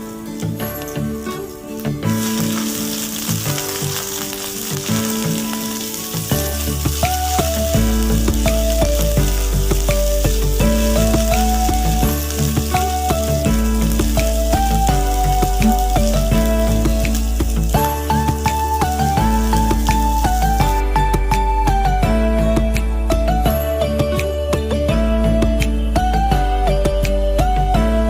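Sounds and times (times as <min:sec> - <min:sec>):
background music with melody: 0:00.0 - 0:28.0
food sizzling in hot oil: 0:00.1 - 0:21.8
bass line: 0:06.3 - 0:28.0.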